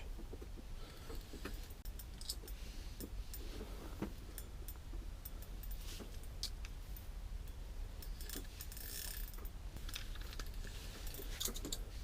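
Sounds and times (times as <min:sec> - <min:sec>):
fishing reel clicking: 0:08.2 - 0:10.0.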